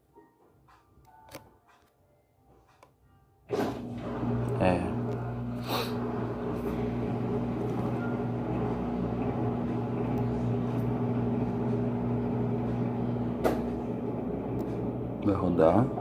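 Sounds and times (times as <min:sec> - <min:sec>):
washing machine drain pump humming: 0:03.5 - 0:16.0.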